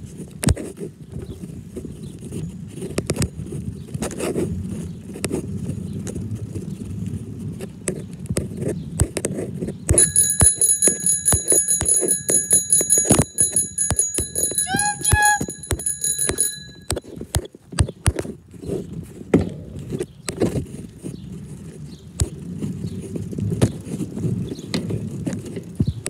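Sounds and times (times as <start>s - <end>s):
bell ringing rapidly: 10.0s - 17.0s.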